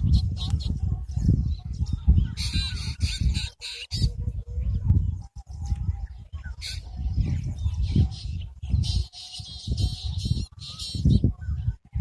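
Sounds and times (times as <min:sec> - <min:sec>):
birds harsh calls: 0:02.2 - 0:04.2, 0:06.5 - 0:07.1, 0:08.1 - 0:11.2.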